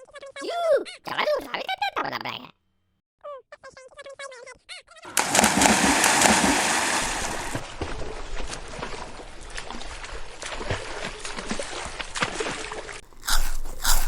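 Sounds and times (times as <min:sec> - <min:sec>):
water splashing and sloshing: 0:05.1 - 0:14.0.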